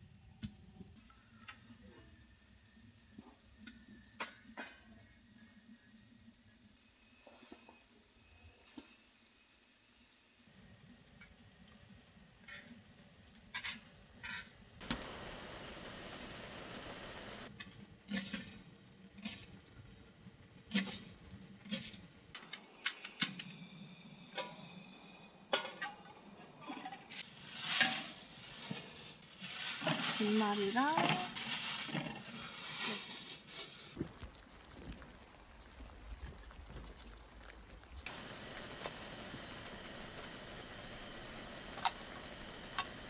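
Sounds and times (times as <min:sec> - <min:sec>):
food frying in hot oil: 0:13.5 - 0:17.5, 0:27.1 - 0:43.0.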